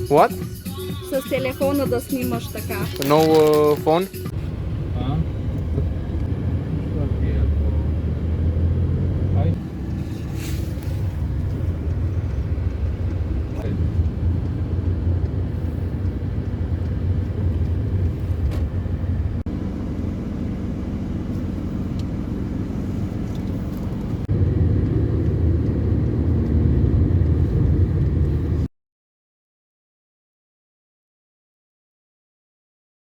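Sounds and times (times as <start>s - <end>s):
low outdoor background rumble: 4.2s - 28.7s.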